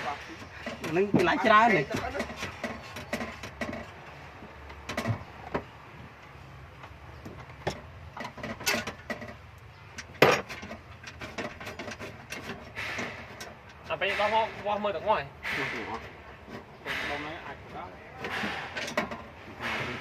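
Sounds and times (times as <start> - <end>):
clicks and knocks of handling: 0.4 - 14.3
sharp knock: 15.4 - 16.0, 16.8 - 17.3.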